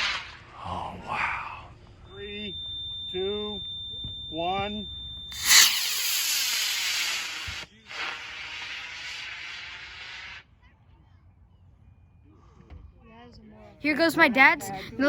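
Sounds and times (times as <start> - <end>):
rocket motor rushing hiss: 5.3 - 10.4.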